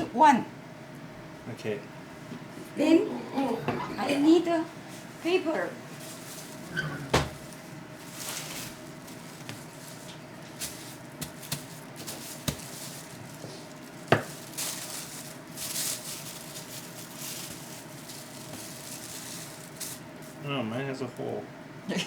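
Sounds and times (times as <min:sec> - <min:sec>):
faint steady hum: 0:00.0 - 0:22.0
paper rustling: 0:05.9 - 0:20.4.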